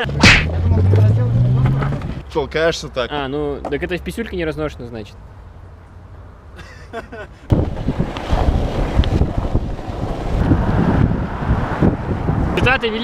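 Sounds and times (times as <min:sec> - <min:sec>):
longboard wheels rumbling on asphalt: 0:00.0 - 0:02.2, 0:07.5 - 0:13.0
wind buffeting microphone: 0:07.5 - 0:13.0.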